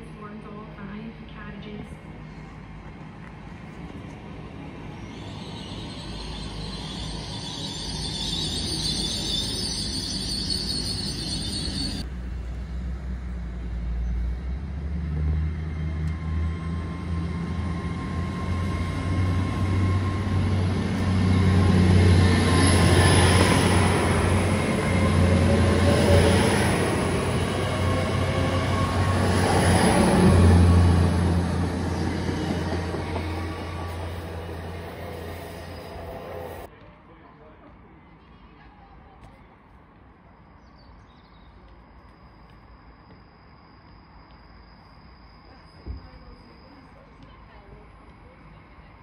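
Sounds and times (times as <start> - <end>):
train rumbling past: 0.0 - 36.7.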